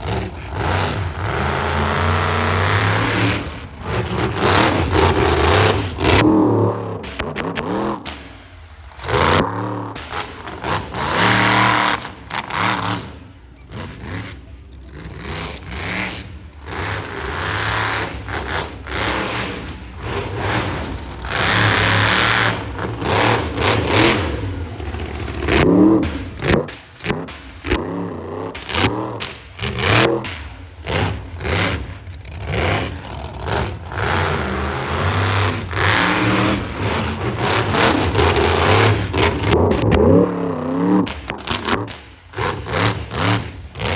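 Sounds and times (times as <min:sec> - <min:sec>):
truck engine revving hard: 0:00.0 - 0:43.9.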